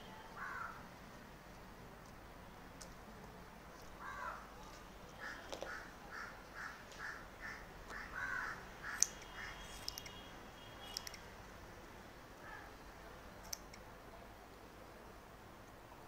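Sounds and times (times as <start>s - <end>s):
scissors snipping hair: 8.9s - 10.2s, 10.9s - 11.2s, 13.4s - 13.8s
faint bird calls: 12.4s - 12.8s.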